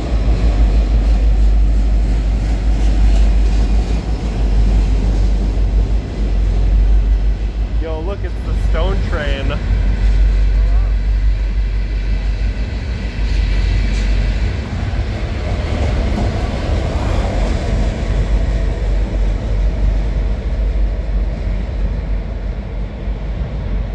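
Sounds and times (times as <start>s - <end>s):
diesel locomotive engine: 0.0s - 23.9s
train cars rumbling past: 0.0s - 23.9s.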